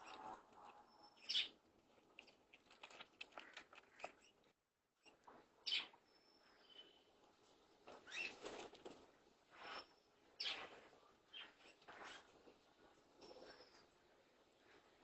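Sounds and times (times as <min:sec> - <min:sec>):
bird chirps: 0:00.0 - 0:01.6, 0:05.6 - 0:07.1
faint thin whistle: 0:06.1 - 0:07.1.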